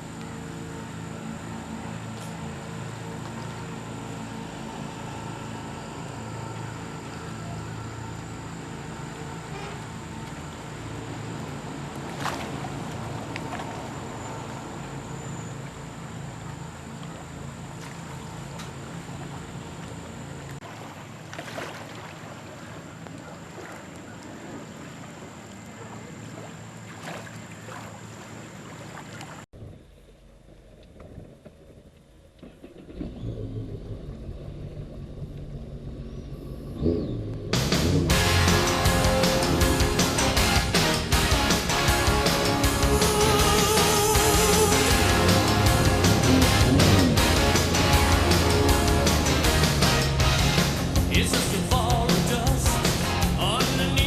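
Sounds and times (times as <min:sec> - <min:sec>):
jet ski engine running: 0:00.0 - 0:54.0
wind: 0:00.0 - 0:54.0
hull slapping waves: 0:06.4 - 0:36.5, 0:37.3 - 0:54.0
rushing water: 0:06.6 - 0:29.5, 0:37.8 - 0:54.0.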